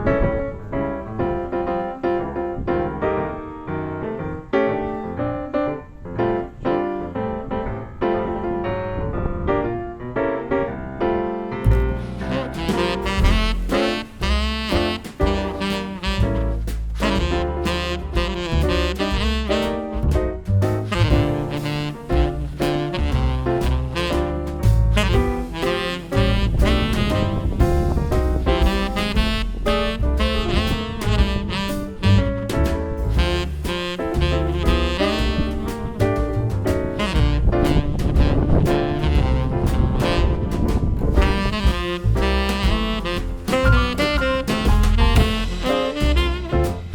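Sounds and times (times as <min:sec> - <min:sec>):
piano: 0:00.0 - 0:46.9
drums swing beat: 0:11.6 - 0:46.9
walking bass: 0:11.6 - 0:46.9
jazz saxophone melody: 0:11.7 - 0:46.9.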